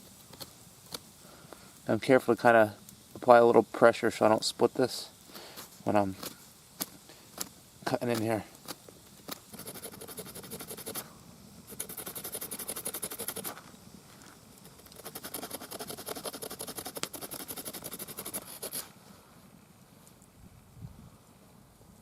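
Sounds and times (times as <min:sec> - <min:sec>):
hand saw rasping through wood: 0:09.5 - 0:11.0, 0:11.7 - 0:13.6, 0:14.9 - 0:18.9.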